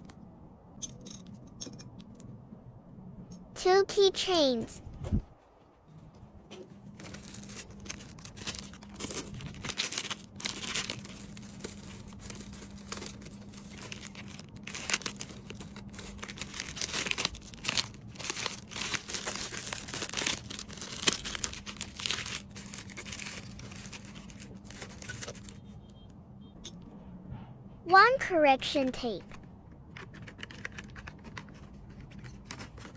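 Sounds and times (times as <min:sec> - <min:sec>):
plastic packaging crinkling: 0:06.9 - 0:25.7, 0:29.2 - 0:32.9
plastic ripping: 0:07.0 - 0:25.6.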